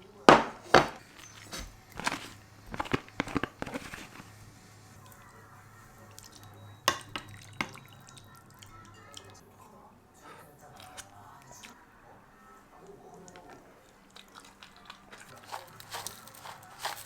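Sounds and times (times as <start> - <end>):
dishes and utensils clinking: 0.3 - 4.3, 6.0 - 11.1, 15.1 - 17.0
water drips: 6.0 - 9.4
water trickling: 6.0 - 9.5.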